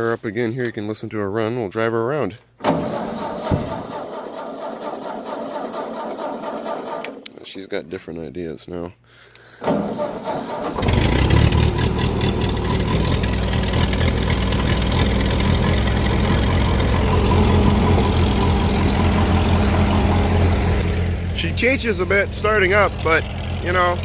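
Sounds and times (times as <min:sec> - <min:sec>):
starter motor cranking: 0:02.6 - 0:07.3, 0:09.6 - 0:24.0
tractor engine running loudly: 0:09.8 - 0:24.0.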